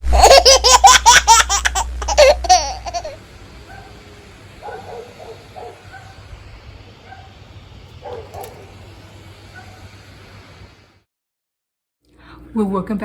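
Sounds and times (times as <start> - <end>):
baby laughing: 0.0 - 3.2.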